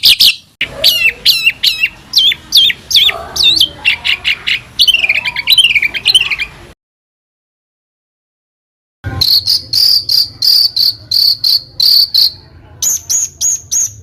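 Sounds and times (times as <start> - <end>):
rapid bird trill: 0.0 - 6.6, 9.1 - 14.0
songbird sharp repeated notes: 9.1 - 14.0.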